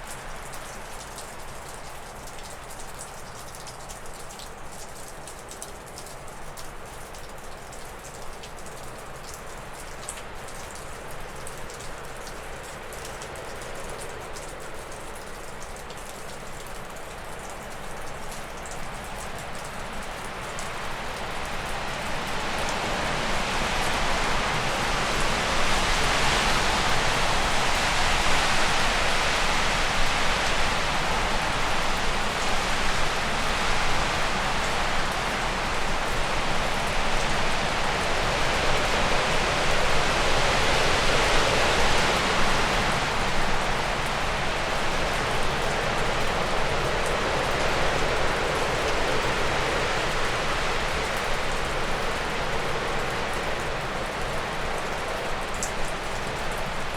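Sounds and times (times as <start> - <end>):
water dripping off a roof: 0.0 - 56.9
wind rushing through trees: 20.3 - 56.9.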